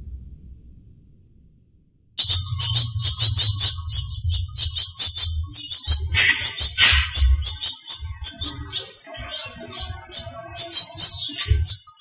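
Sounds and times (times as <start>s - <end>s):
low rumble: 0.0s - 8.5s
harsh bird call: 2.2s - 12.0s
songbirds chirping rapidly: 2.2s - 12.0s.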